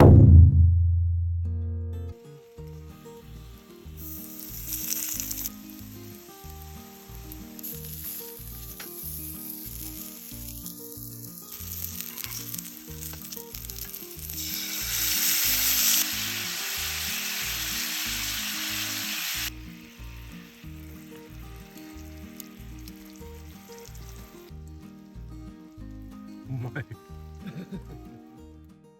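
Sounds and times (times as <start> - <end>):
background music with low bass: 0.0 - 28.9
meat patties sizzling: 2.2 - 28.0.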